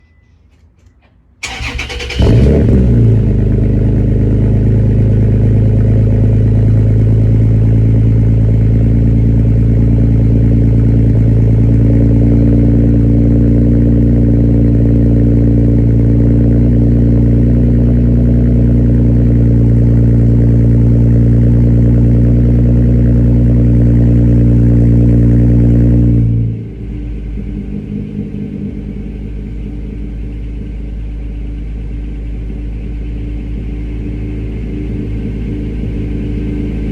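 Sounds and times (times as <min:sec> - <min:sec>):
truck engine cranking and starting: 0:00.9 - 0:03.7
loud exhaust idle: 0:01.4 - 0:36.9.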